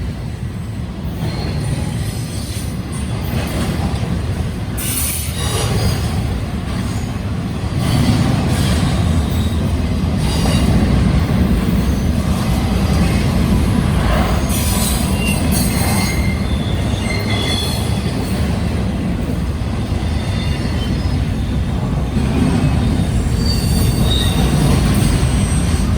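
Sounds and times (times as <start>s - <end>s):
train wheels rumbling on rail: 0.0s - 25.9s
high-pitched wheel squeals: 14.6s - 18.2s, 22.9s - 25.9s.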